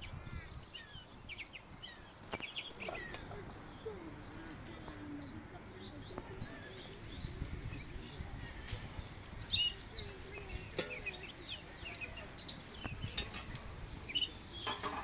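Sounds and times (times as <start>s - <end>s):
small birds chirping: 0.0s - 15.0s
faint clicks: 2.3s - 15.0s.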